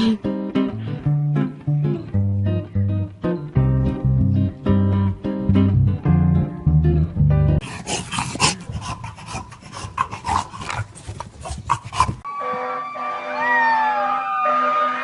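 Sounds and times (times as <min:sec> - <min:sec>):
dog panting and snuffling: 0:07.6 - 0:12.3
howl-like call: 0:12.3 - 0:15.0.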